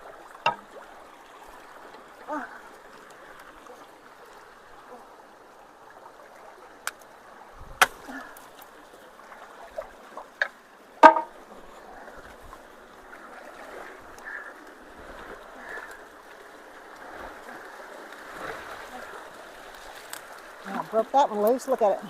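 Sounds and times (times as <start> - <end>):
stream water running: 0.0 - 22.0
debris knocking and clacking: 11.0 - 11.3.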